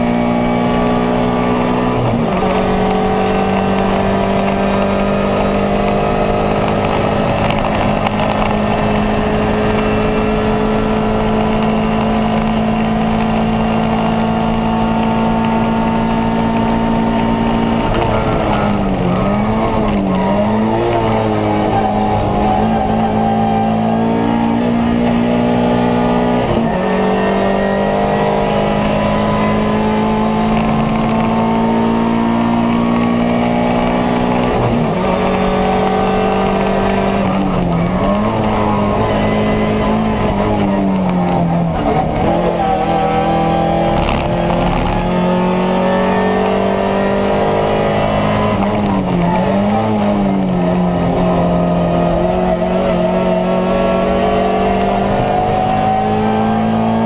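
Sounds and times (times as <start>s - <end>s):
car engine accelerating hard: 0.0s - 57.0s
road and wind noise: 0.0s - 57.0s.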